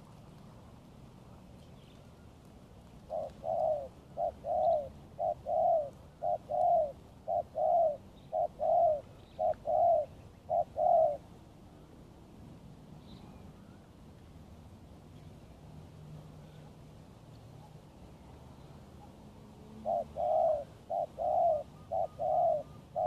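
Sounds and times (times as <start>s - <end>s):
dove cooing: 3.0s - 11.3s, 19.6s - 23.0s.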